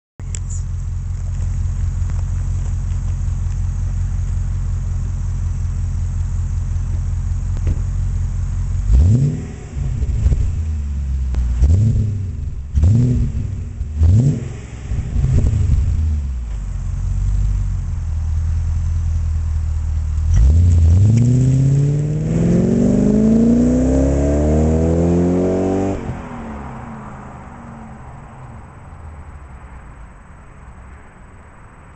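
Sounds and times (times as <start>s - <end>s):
car engine idling and revving: 0.2s - 31.9s.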